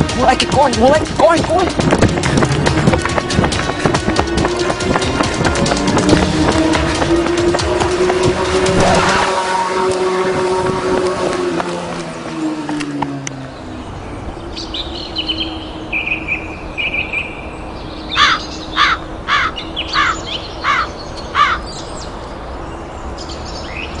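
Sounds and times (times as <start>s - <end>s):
bird calling: 13.4s - 22.2s.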